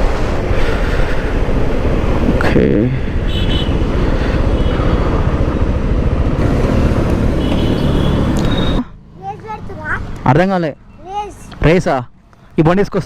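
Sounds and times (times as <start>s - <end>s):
wind rush on microphone: 0.0s - 7.2s
motorcycle engine: 1.7s - 9.4s
faint high traffic tones: 7.2s - 13.0s.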